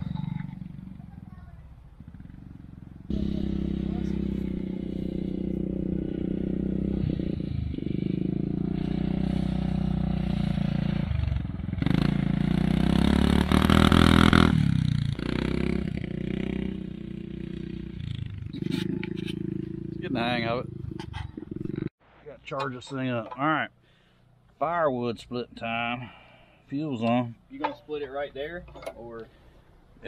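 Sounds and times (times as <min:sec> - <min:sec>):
atv engine revving: 0:00.0 - 0:21.9.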